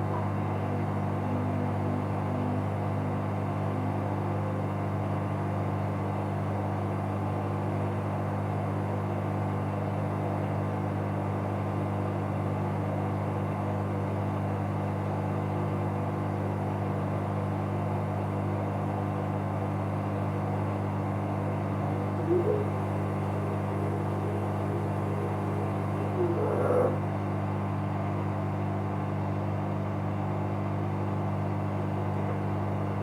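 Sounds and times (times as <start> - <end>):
washing machine running: 0.0 - 5.6, 14.8 - 33.0.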